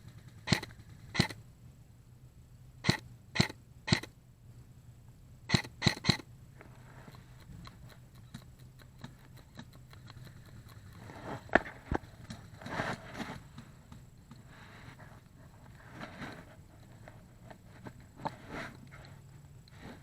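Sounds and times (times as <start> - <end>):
airsoft gun shots: 0.5 - 1.4
faint ticks: 5.5 - 12.7.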